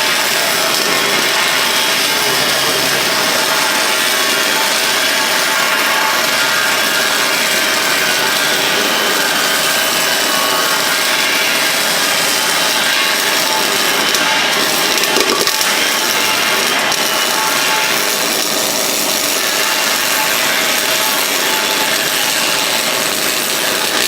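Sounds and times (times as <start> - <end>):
welding arc crackling hiss: 0.0 - 24.0.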